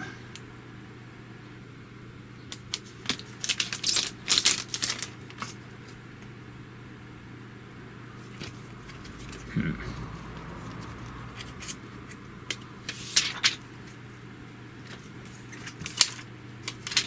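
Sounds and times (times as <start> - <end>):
steady low hum: 0.0 - 17.0
scratchy film rustling: 2.7 - 6.0, 8.2 - 14.0, 14.8 - 17.0.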